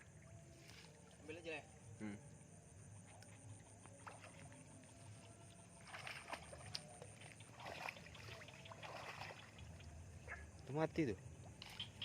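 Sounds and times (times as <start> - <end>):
water splashing and sloshing: 3.1 - 12.0.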